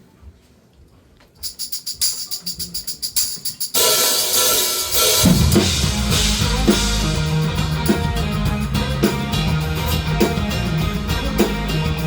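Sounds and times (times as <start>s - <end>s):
percussion ticks: 1.4s - 3.8s
cymbal wash: 3.8s - 11.9s
live band playing: 3.8s - 12.0s.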